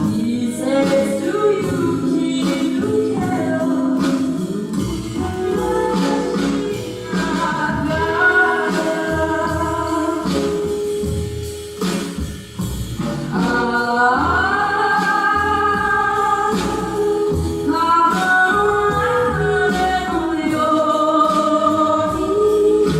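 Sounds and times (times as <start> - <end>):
girl singing slow song: 0.0 - 11.0.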